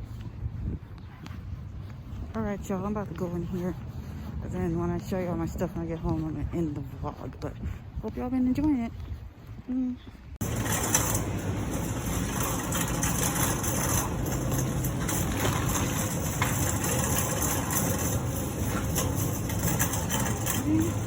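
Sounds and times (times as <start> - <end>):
car engine and road noise: 10.4 - 21.0.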